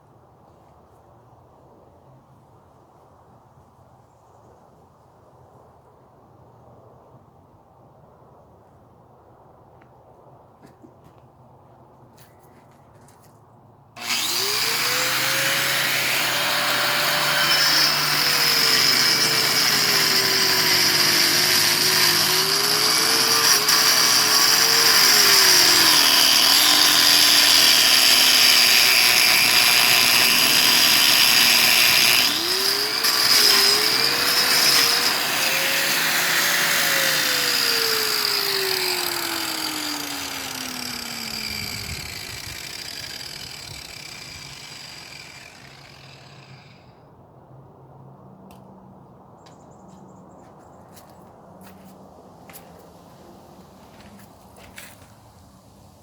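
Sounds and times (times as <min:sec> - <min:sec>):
power tool on concrete: 0:14.0 - 0:47.0.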